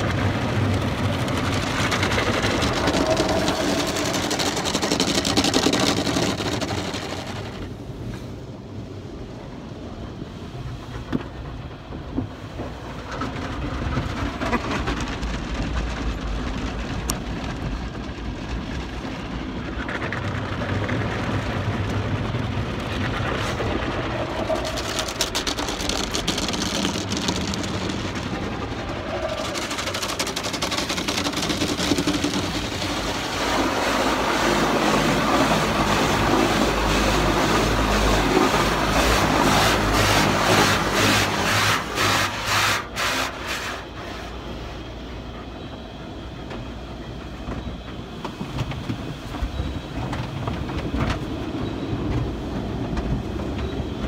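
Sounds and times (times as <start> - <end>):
water spraying on car body: 0.0 - 8.8, 13.0 - 44.8
car wash machinery rumble: 0.0 - 54.0.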